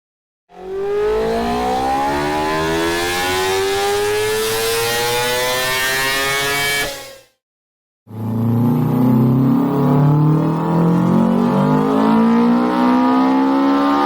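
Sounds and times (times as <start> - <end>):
two-stroke engine revving: 0.5 - 7.0.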